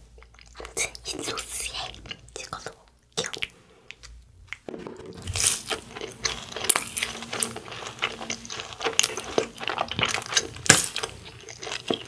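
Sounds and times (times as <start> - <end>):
crunchy food chewing: 0.0 - 12.0.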